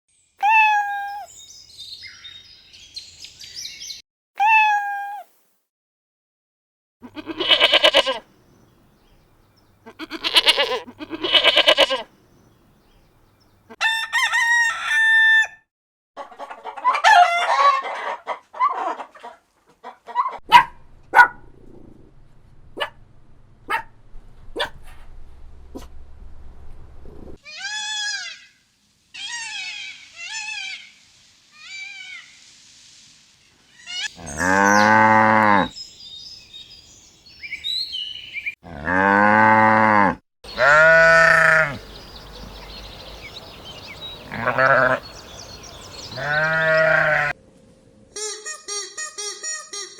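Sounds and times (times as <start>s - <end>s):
loud bleating: 7.0s - 8.2s, 9.8s - 12.1s, 27.4s - 28.4s, 34.0s - 35.8s, 38.6s - 41.8s, 44.2s - 45.2s, 46.2s - 47.4s
rooster crowing: 13.8s - 15.7s
hens clucking: 16.2s - 20.4s.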